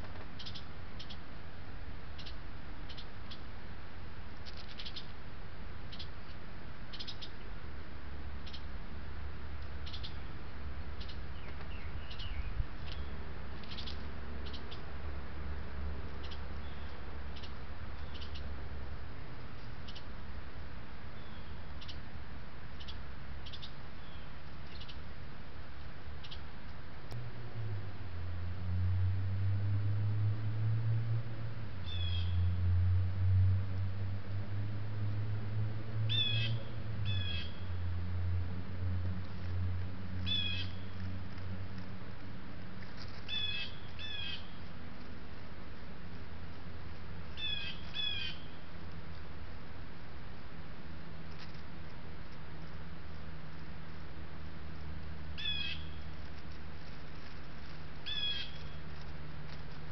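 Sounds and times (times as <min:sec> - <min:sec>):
low rumble and hiss: 0:00.0 - 0:59.9
steady low hum: 0:00.0 - 0:59.9
bird calling: 0:00.4 - 0:01.2, 0:05.9 - 0:07.4, 0:09.8 - 0:10.3, 0:11.0 - 0:14.8, 0:16.2 - 0:18.5, 0:31.8 - 0:32.5, 0:36.1 - 0:37.7, 0:40.2 - 0:41.0, 0:43.1 - 0:44.6, 0:47.3 - 0:48.7, 0:55.4 - 0:56.0, 0:58.0 - 0:58.8.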